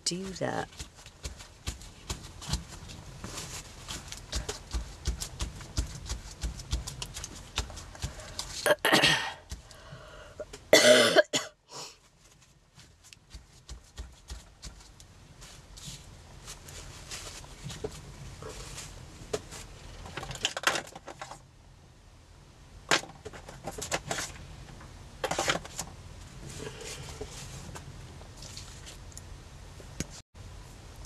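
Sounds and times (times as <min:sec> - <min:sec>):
taps and rustles of materials: 0:00.0 - 0:08.7, 0:09.4 - 0:09.8, 0:12.1 - 0:21.4
person coughing: 0:08.6 - 0:09.4, 0:10.7 - 0:11.6.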